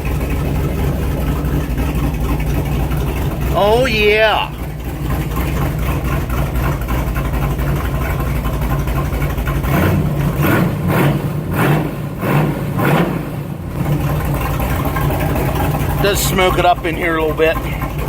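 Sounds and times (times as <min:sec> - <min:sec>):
car engine idling and revving: 0:00.0 - 0:18.0.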